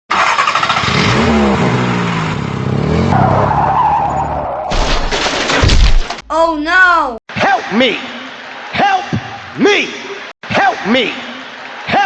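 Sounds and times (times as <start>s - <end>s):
car engine revving: 0.1s - 4.5s
tyres skidding: 0.1s - 6.2s.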